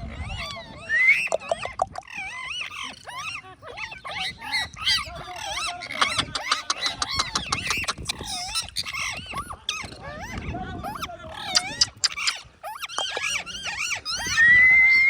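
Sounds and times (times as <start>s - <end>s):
parrot whistling and squawking: 0.2s - 10.4s, 11.4s - 15.0s
parrot clicks: 1.3s - 2.1s, 6.0s - 8.4s, 11.5s - 13.4s.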